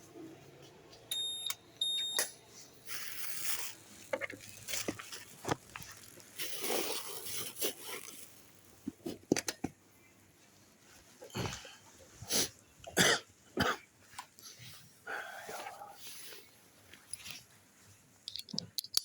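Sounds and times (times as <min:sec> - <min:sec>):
rustling: 0:02.9 - 0:08.9.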